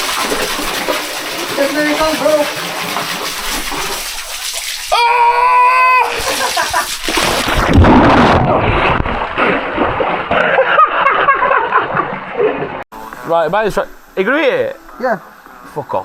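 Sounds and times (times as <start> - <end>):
man shouting: 4.9 - 6.3
body splashing into water: 6.1 - 12.8
water sloshing: 6.2 - 12.8.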